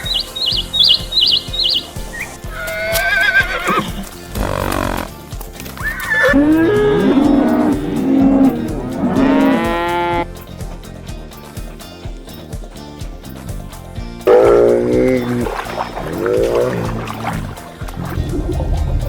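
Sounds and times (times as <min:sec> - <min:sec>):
higher wavering animal call: 0:00.0 - 0:05.0, 0:05.8 - 0:10.2, 0:14.3 - 0:17.2
background music with steady beat: 0:00.0 - 0:19.0
cow mooing: 0:06.3 - 0:10.2, 0:14.3 - 0:17.2.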